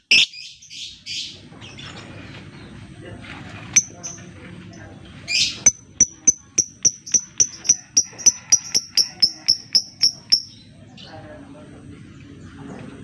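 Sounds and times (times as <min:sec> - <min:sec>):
bird ticking call: 0:00.0 - 0:00.4, 0:05.6 - 0:10.6.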